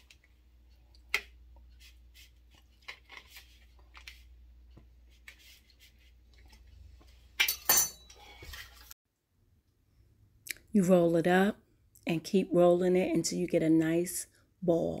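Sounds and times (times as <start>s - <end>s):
utensils clattering: 7.4s - 8.9s.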